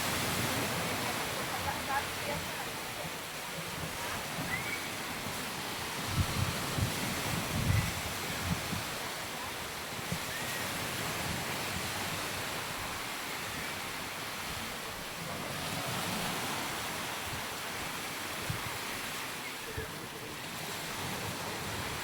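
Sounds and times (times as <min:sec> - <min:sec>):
wind buffeting microphone: 0:00.0 - 0:13.8
sea surf washing onto beach: 0:00.0 - 0:22.0.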